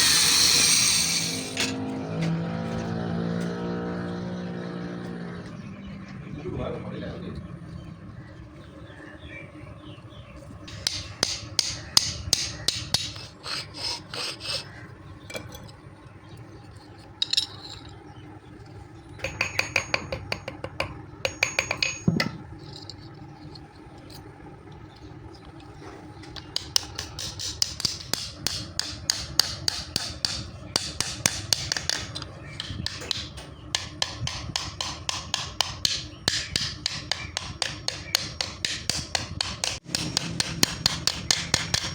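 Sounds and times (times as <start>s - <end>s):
steady low hum: 0.0s - 41.9s
hammer striking steel on anvil: 10.7s - 13.2s, 19.2s - 22.4s, 26.4s - 41.9s.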